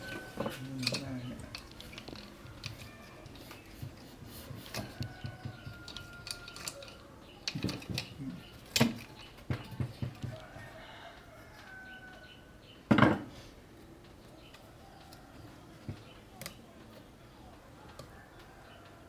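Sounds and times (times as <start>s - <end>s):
metal parts clinking and knocking: 0.0s - 9.8s.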